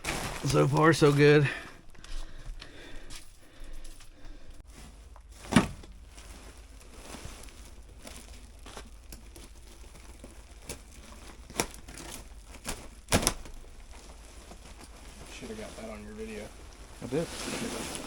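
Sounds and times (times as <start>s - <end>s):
plastic duct crinkling and tearing: 0.0s - 1.4s, 5.1s - 18.0s.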